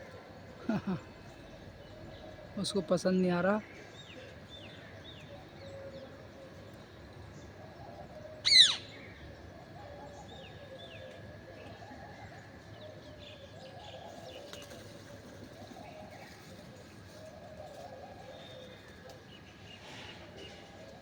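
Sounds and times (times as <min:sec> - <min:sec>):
birds cooing: 0:00.0 - 0:02.8, 0:07.5 - 0:21.0
parrot harsh call: 0:08.5 - 0:08.9.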